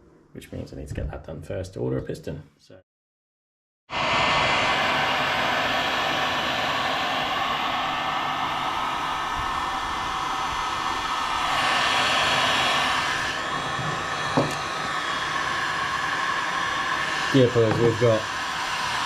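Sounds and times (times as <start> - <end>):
heat gun blowing: 3.9 - 19.0.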